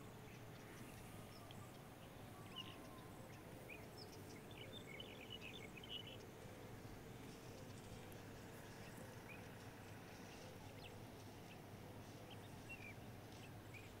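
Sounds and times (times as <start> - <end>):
faint bird chirps: 0.2 - 6.4.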